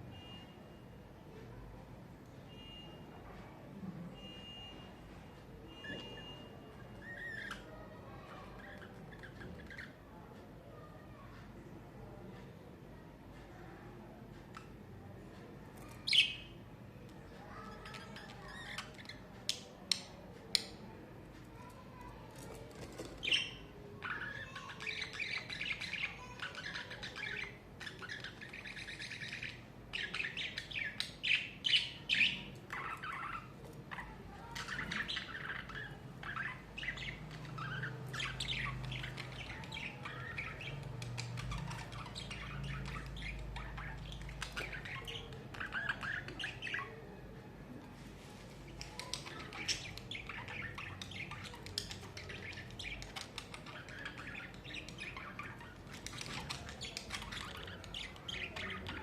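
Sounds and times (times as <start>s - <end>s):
budgies chirping and squawking: 5.7s - 10.0s, 17.4s - 19.6s, 21.6s - 47.1s, 48.4s - 59.0s.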